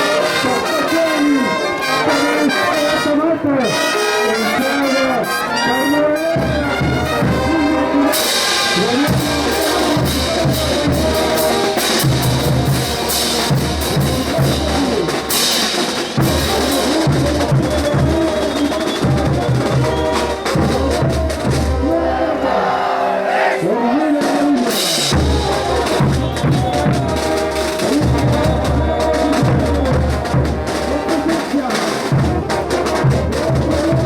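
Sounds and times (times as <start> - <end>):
brass band playing: 0.0 - 34.0
cymbals and snare: 3.7 - 21.8, 24.2 - 34.0
bass drum beat: 8.8 - 22.0, 24.4 - 34.0.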